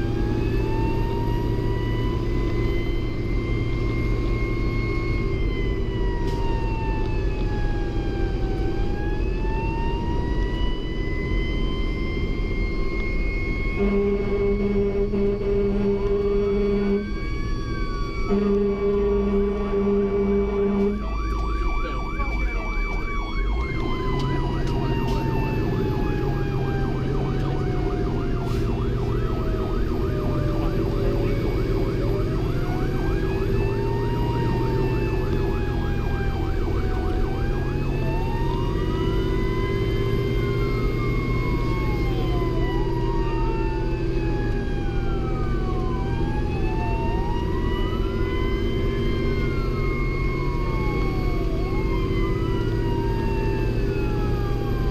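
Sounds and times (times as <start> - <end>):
diesel engine running: 0.0 - 54.9
fire engine sirens: 0.0 - 54.9.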